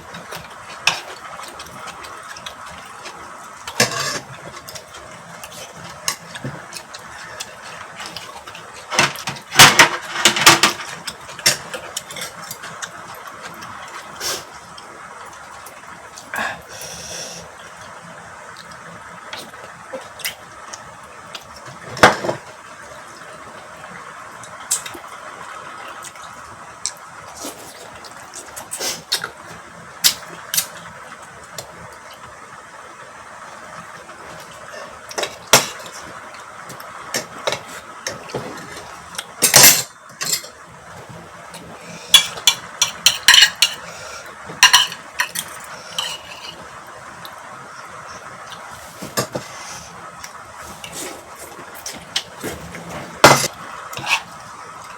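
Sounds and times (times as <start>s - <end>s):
cutlery clinking on plates: 42.2s - 43.9s, 44.6s - 46.6s.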